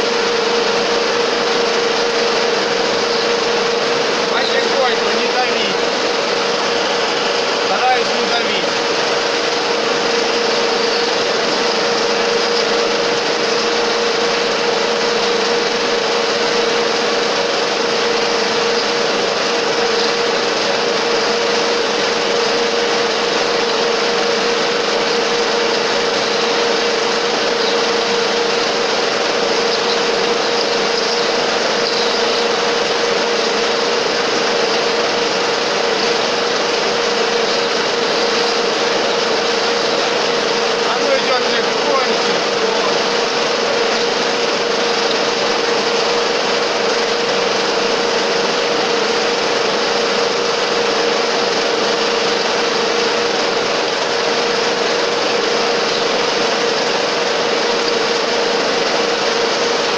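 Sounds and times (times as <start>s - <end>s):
coolant hissing: 0.0s - 59.9s
drill boring into metal: 0.0s - 59.9s
metal lathe running: 0.0s - 59.9s.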